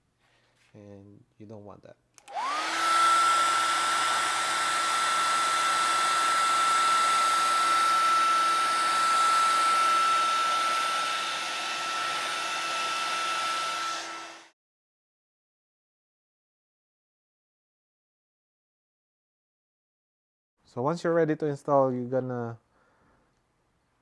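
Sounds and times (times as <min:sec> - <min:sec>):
hair dryer running: 0:02.2 - 0:14.6.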